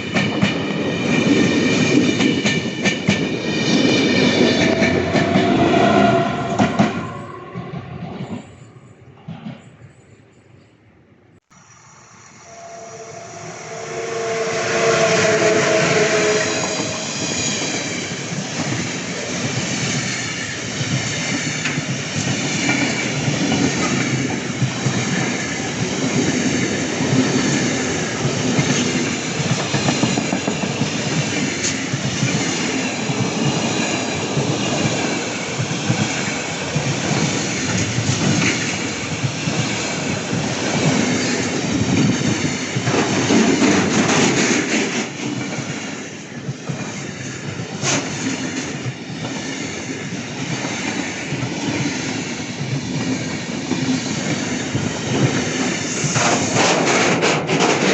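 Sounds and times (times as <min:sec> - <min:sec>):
train passing at speed: 0:00.0 - 0:10.7, 0:11.4 - 0:57.9
steady tone: 0:11.5 - 0:18.0
wheels clattering on rails: 0:16.6 - 0:57.9.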